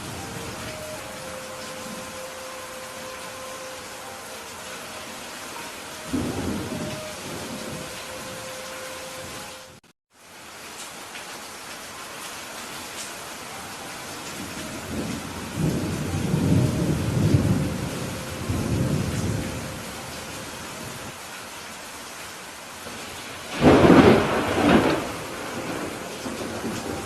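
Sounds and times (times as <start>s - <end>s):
steady rain: 0.0s - 27.0s
rolling thunder rumble: 6.1s - 8.4s, 14.6s - 21.1s, 23.5s - 27.0s
sharp thunderclap: 23.5s - 27.0s.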